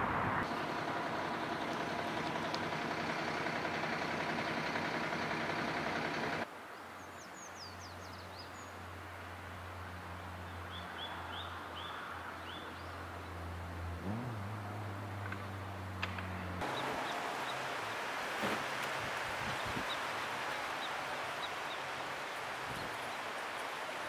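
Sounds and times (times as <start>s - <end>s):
songbird calls: 16.6s - 18.7s.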